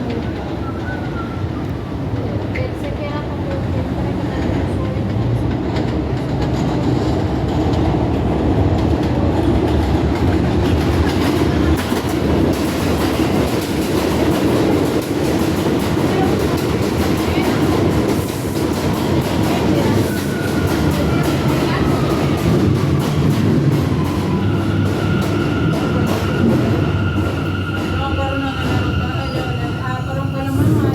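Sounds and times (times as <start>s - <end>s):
train rumbling over rails: 0.0s - 30.9s.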